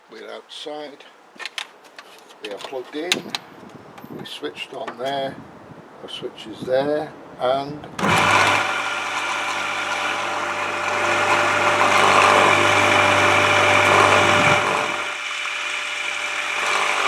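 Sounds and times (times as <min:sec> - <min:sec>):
power washer motor running: 0:08.0 - 0:17.0.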